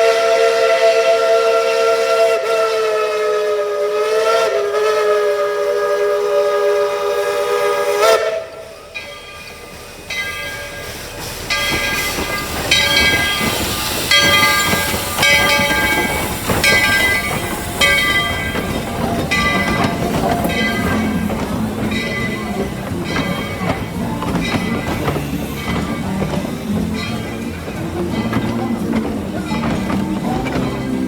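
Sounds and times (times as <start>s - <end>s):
steam locomotive chime whistle: 0.0s - 31.0s
steam hiss: 2.9s - 31.0s
locomotive bell ringing: 8.5s - 31.0s.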